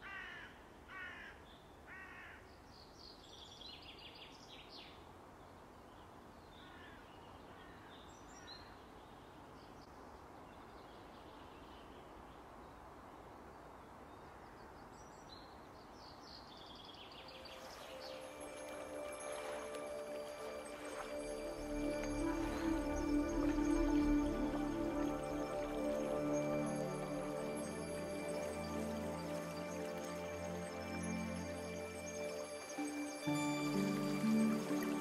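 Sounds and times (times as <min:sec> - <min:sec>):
crow cawing: 0:00.0 - 0:02.4, 0:06.6 - 0:07.9
faint outdoor background noise: 0:00.0 - 0:35.0.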